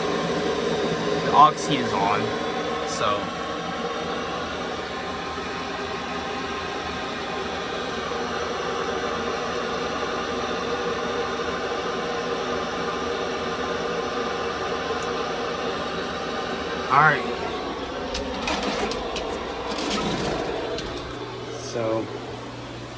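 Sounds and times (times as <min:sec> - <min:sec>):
blower rushing air: 0:00.0 - 0:22.9
faint hum: 0:00.0 - 0:22.9.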